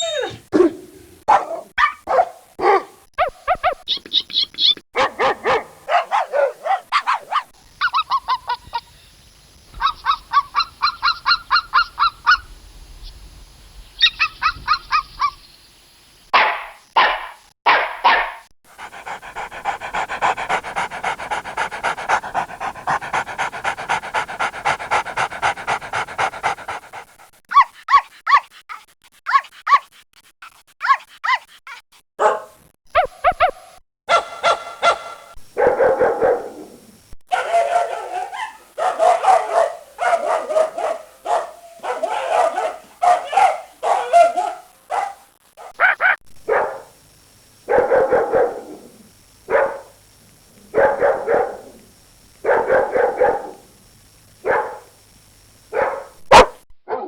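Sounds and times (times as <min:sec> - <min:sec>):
dogs barking and yapping: 0:00.0 - 0:03.9, 0:05.0 - 0:08.8, 0:09.8 - 0:12.5, 0:16.4 - 0:27.7, 0:32.2 - 0:36.7, 0:37.3 - 0:46.9, 0:47.7 - 0:48.8, 0:49.5 - 0:49.9, 0:50.7 - 0:51.7, 0:52.4 - 0:53.6, 0:54.5 - 0:54.9, 0:55.7 - 0:57.0.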